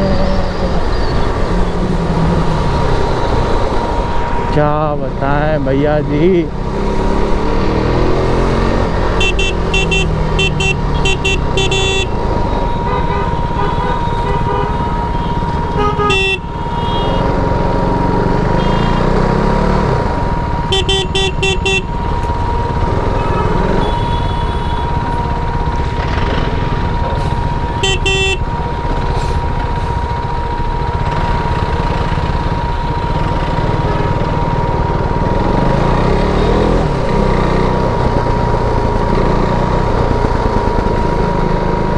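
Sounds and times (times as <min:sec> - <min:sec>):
motorcycle engine revving: 0:00.0 - 0:04.4, 0:05.8 - 0:29.5, 0:30.7 - 0:41.9
short horn toots: 0:09.2 - 0:12.2, 0:18.5 - 0:19.1, 0:20.7 - 0:21.9, 0:27.8 - 0:28.4.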